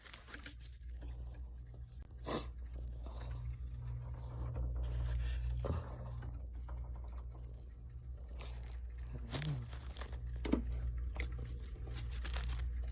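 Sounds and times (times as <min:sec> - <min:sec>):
frost crunching: 0:00.0 - 0:00.8, 0:08.2 - 0:12.9
steady low hum: 0:00.0 - 0:12.9.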